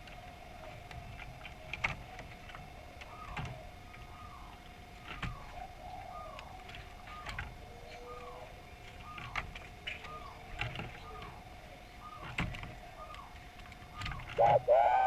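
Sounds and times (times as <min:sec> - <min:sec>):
dove cooing: 0:14.0 - 0:15.0
faint steady tone: 0:14.4 - 0:15.0.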